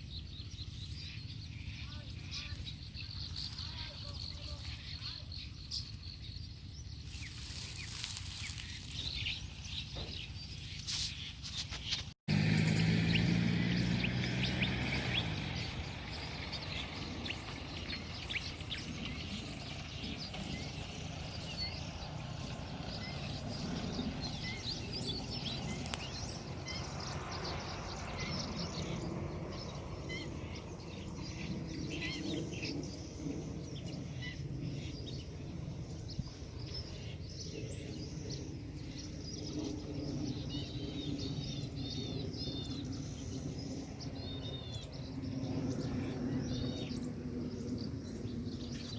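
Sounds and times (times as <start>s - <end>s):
small birds chirping: 0.0s - 48.9s
wind blowing: 0.0s - 48.9s
loud low hum: 12.3s - 48.9s.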